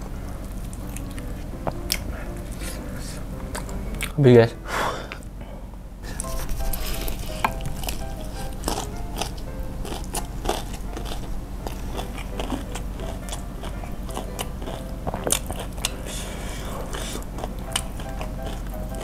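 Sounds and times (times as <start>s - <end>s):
wet chewing: 0.0s - 4.2s, 6.1s - 19.0s
crunchy bites of fried chicken: 7.5s - 16.2s.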